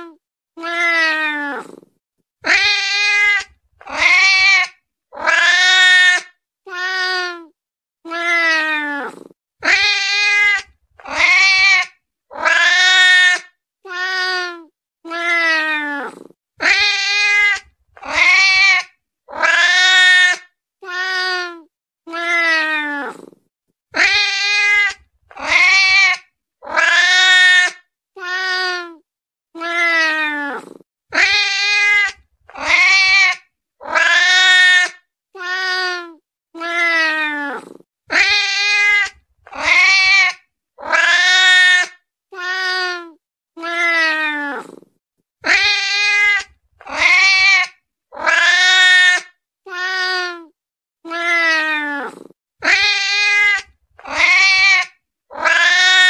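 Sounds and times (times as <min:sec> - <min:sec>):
cat meowing: 0:00.0 - 0:01.8, 0:29.6 - 0:44.8, 0:45.4 - 0:50.5, 0:51.1 - 0:56.0.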